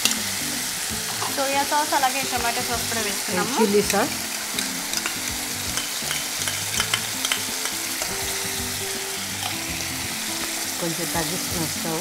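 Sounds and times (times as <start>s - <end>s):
garlic sizzling in hot oil: 0.0s - 12.0s
spoon clicking in pan: 4.6s - 8.2s.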